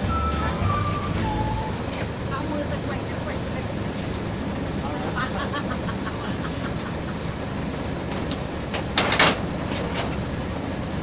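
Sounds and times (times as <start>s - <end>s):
boat running noise: 0.0s - 11.0s
clatter of sharp knocks: 8.1s - 10.2s.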